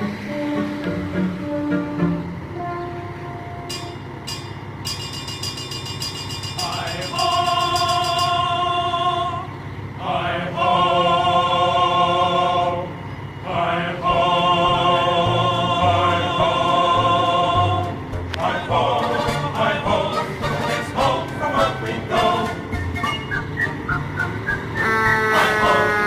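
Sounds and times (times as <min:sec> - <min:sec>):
engine low rumble: 0:00.0 - 0:26.0
fire engine air horn blasts: 0:00.1 - 0:04.2, 0:24.8 - 0:26.0.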